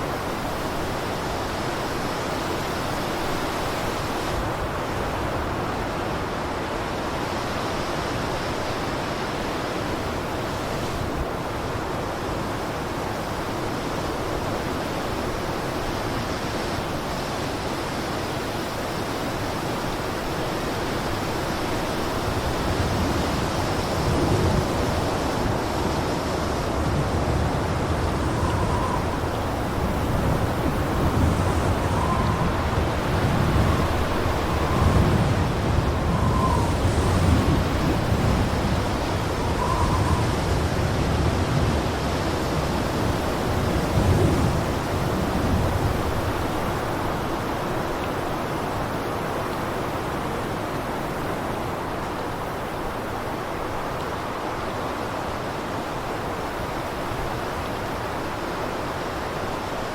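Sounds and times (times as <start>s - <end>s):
blizzard wind rushing: 0.0s - 59.9s
faint whistles: 28.1s - 30.4s, 31.1s - 35.2s, 35.9s - 37.3s, 39.4s - 40.5s.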